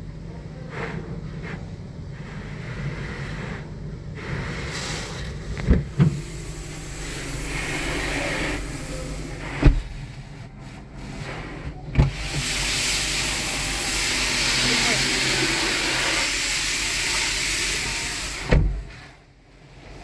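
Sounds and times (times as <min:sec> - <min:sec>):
low hum: 0:05.4 - 0:16.2
hissing water spray: 0:06.0 - 0:09.6, 0:12.0 - 0:18.7.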